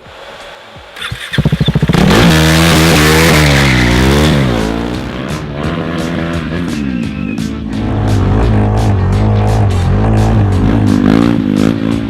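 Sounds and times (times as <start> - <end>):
tyre skidding and squealing: 1.0 - 5.0
motorcycle engine revving hard: 1.0 - 7.2, 7.8 - 12.0.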